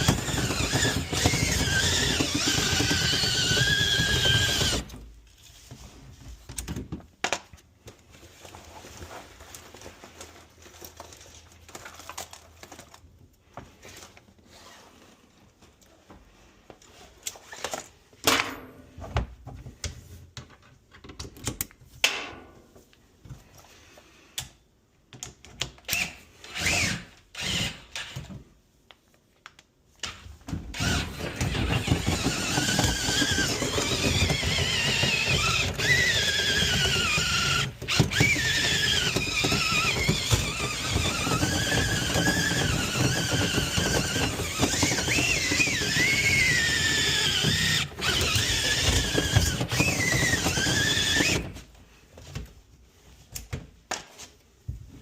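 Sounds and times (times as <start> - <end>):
power drill spinning brush: 0.0 - 5.9, 26.0 - 28.3, 30.7 - 51.7.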